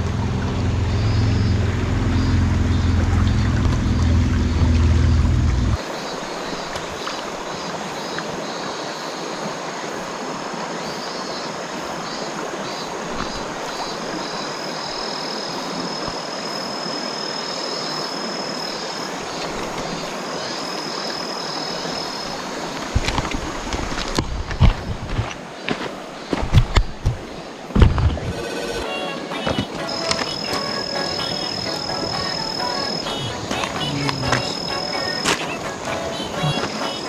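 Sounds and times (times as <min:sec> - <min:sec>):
river water rushing: 0:27.3 - 0:37.0
thin high buzz: 0:28.2 - 0:37.0.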